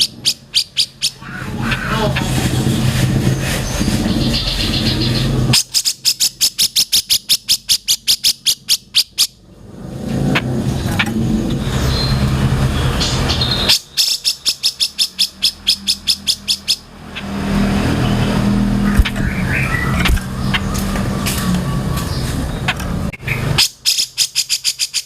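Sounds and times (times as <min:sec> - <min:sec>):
songbird rapid sharp calls: 0:00.0 - 0:02.5, 0:03.1 - 0:09.4, 0:13.2 - 0:20.8, 0:22.6 - 0:25.0
steady low rumble: 0:00.0 - 0:05.6, 0:17.2 - 0:23.2.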